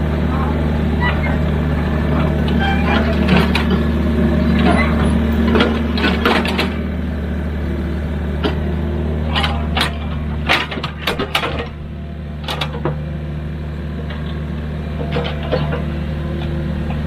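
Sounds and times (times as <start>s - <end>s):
diesel engine running: 0.0s - 17.0s
metallic clanks and knocks: 4.5s - 6.8s, 9.3s - 11.8s, 15.0s - 17.0s.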